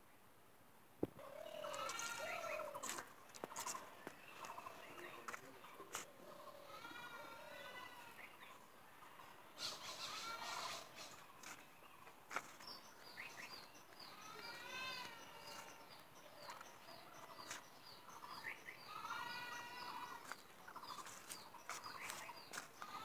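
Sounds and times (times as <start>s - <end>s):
bird warbling calls: 1.2s - 6.7s, 8.1s - 12.0s
bird chirping: 1.2s - 23.0s.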